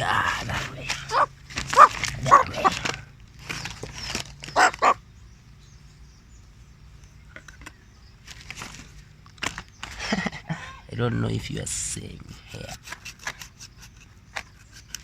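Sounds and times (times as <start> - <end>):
dog barking: 1.0 - 2.9, 4.5 - 5.0.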